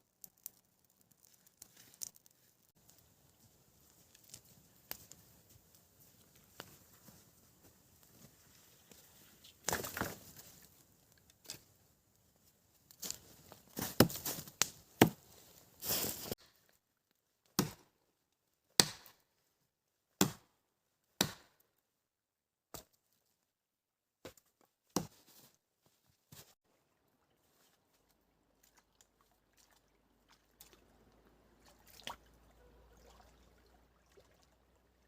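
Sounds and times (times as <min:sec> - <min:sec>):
axe chopping wood: 0:15.0 - 0:15.2, 0:17.6 - 0:17.9, 0:18.8 - 0:19.2, 0:20.2 - 0:20.5, 0:21.2 - 0:21.6.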